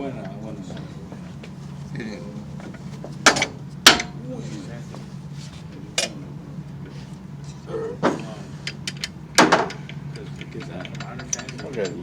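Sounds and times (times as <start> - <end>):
steady low hum: 0.0 - 12.0
metal tools clinking: 9.8 - 12.0.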